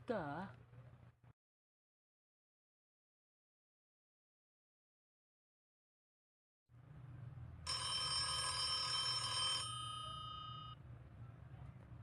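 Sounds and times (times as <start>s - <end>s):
telephone ringing: 7.7s - 10.8s.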